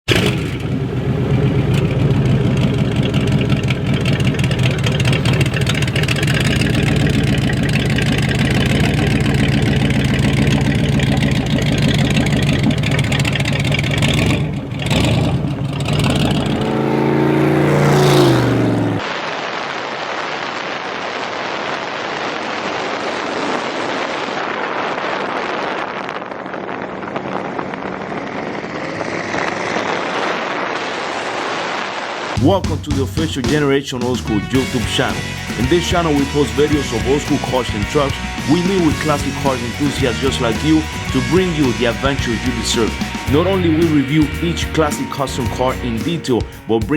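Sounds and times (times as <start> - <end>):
car engine revving: 0.0 - 19.1, 26.7 - 33.0, 34.4 - 46.5
wind and road noise: 0.0 - 32.6.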